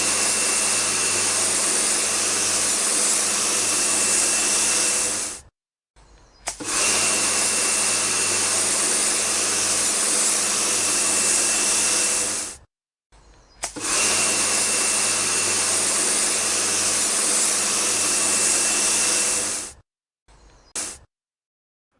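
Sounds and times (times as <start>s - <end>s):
small electric motor hissing: 0.0s - 5.5s, 6.4s - 12.6s, 13.5s - 19.8s, 20.4s - 21.1s.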